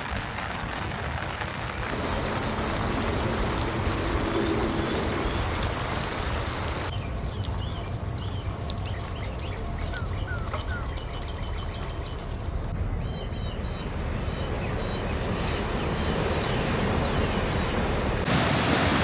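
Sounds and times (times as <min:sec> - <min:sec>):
heavy rain falling: 0:00.0 - 0:06.9, 0:13.7 - 0:19.0
light rain: 0:00.0 - 0:19.0
birds chirping: 0:01.8 - 0:07.0, 0:12.8 - 0:18.3.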